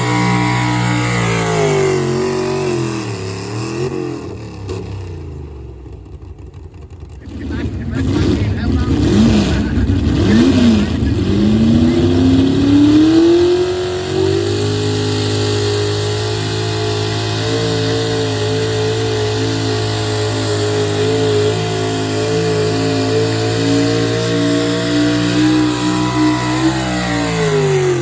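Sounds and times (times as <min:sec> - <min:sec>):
vehicle engine revving: 0:00.0 - 0:28.0.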